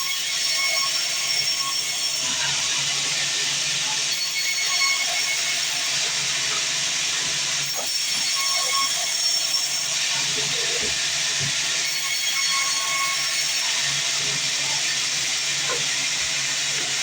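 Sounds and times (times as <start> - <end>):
band saw cutting through log: 0.0 - 17.0.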